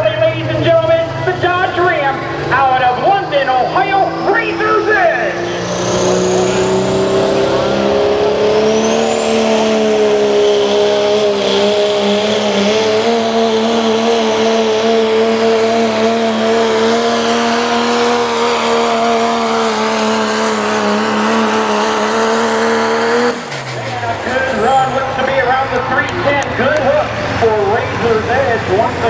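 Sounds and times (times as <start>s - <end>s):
diesel truck engine running hard: 0.0s - 29.0s.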